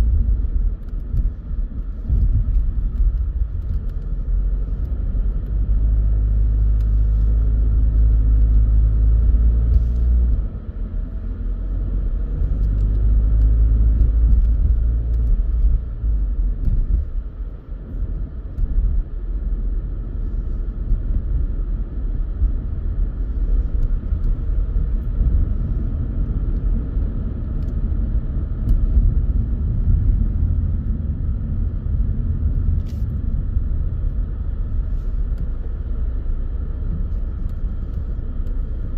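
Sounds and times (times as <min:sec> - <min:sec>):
car driving rumble: 0:00.0 - 0:38.9.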